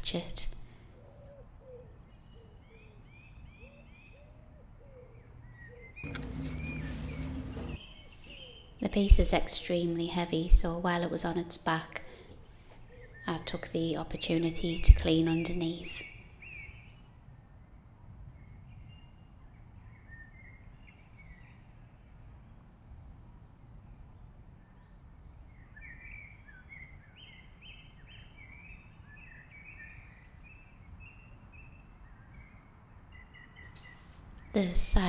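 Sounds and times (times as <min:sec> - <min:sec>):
birds chirping: 0:05.6 - 0:10.7
low steady background rumble: 0:06.0 - 0:18.5.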